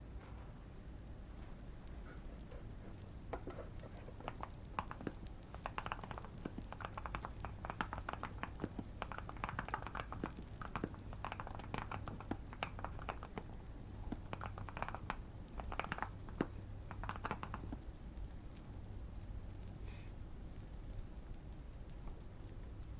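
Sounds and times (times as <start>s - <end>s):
fireplace crackling: 0.0s - 22.9s
low steady hum: 0.0s - 22.9s
mechanical keyboard typing: 3.5s - 17.8s.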